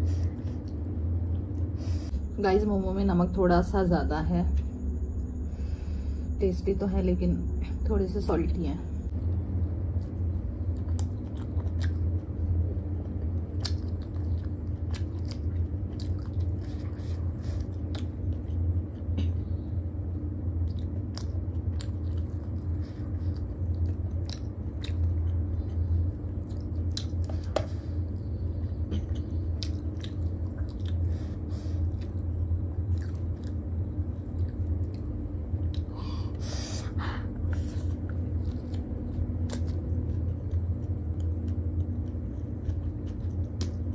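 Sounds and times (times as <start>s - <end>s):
steady low hum: 0.0s - 43.9s
wet chewing mouth clicks: 13.6s - 17.1s.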